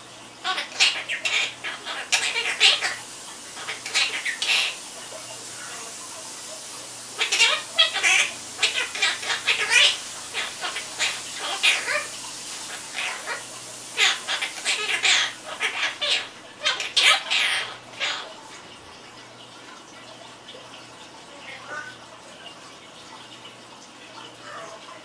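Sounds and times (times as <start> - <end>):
parrot chattering squawky calls: 0.4 - 6.0, 7.0 - 18.4, 21.4 - 22.0.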